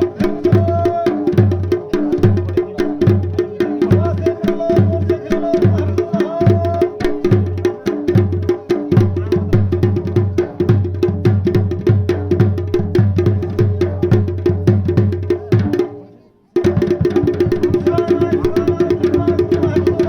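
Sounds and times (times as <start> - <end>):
quick sharp drum strokes: 16.6 - 20.0.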